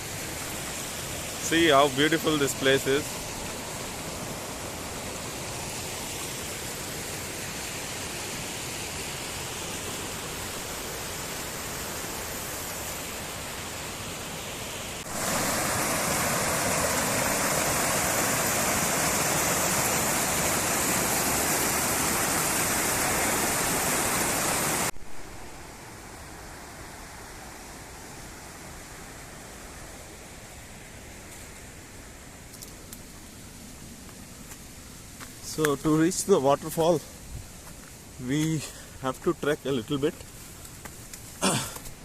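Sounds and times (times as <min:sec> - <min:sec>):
waterfall rushing: 0:00.0 - 0:24.9.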